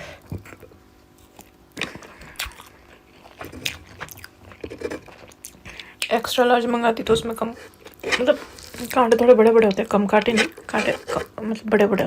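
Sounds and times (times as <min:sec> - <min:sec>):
person chewing food: 0:00.4 - 0:06.0.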